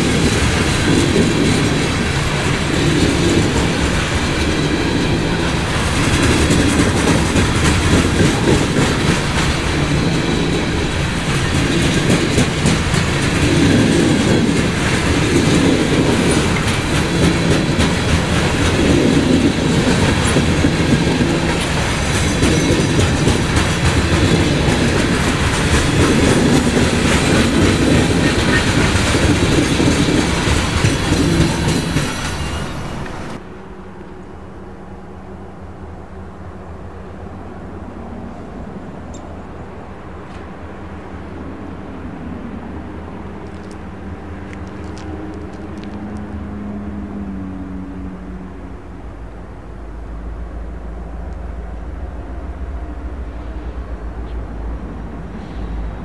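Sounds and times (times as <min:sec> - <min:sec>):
train wheels clacking over joints: 0:00.0 - 0:33.4.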